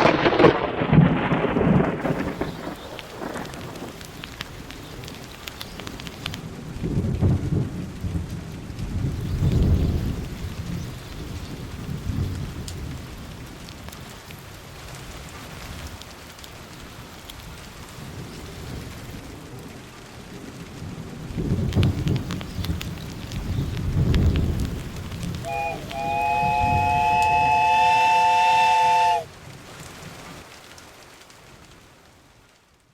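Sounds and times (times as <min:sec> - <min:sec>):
rolling thunder rumbles: 0:00.0 - 0:13.5, 0:18.0 - 0:29.3
rain falling: 0:00.0 - 0:32.9.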